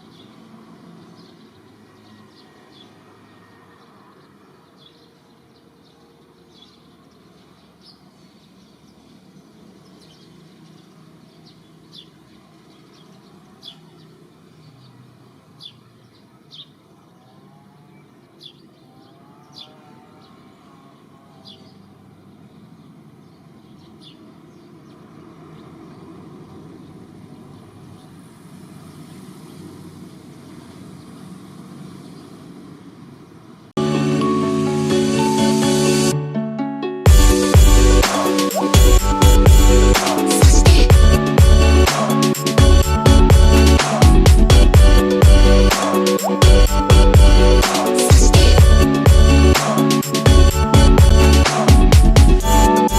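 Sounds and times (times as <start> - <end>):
steady low rumble: 37.1 - 38.0, 38.7 - 41.9, 42.6 - 45.7, 46.4 - 49.6, 50.2 - 52.9
short high chirps: 37.1 - 52.9.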